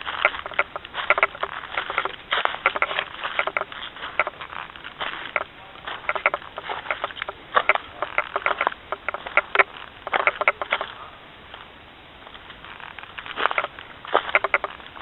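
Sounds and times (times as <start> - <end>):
footsteps crackling on trail: 0.0 - 15.0.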